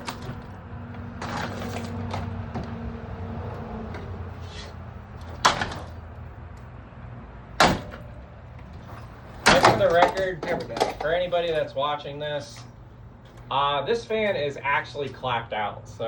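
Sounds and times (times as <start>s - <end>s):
sharp bangs on fan: 7.6s - 8.0s.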